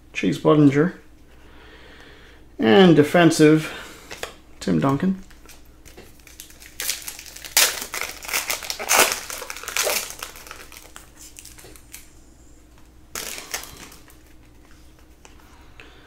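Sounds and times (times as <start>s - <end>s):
foil wrapper crinkling and tearing: 5.2s - 12.2s, 13.1s - 14.5s.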